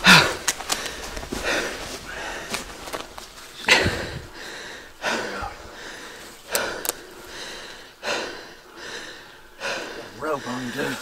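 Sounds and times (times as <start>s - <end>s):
person breathing hard: 0.0s - 3.0s, 3.6s - 11.0s
sharp clicks: 6.4s - 7.1s.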